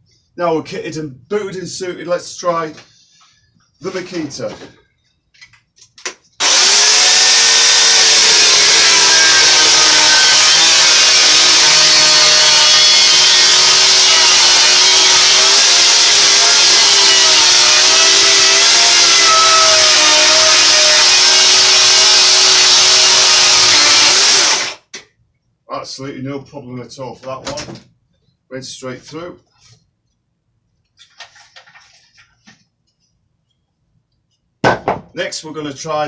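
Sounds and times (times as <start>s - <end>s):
electric chainsaw cutting wood: 6.4s - 24.9s.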